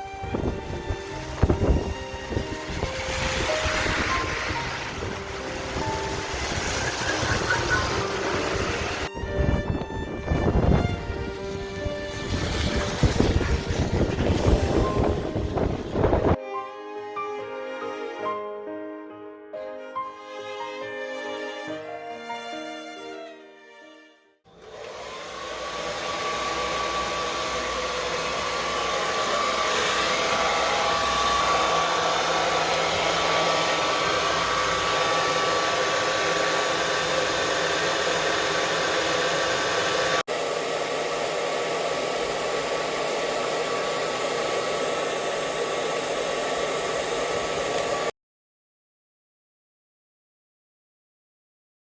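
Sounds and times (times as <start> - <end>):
hair dryer running: 0.0 - 16.4, 24.5 - 48.1.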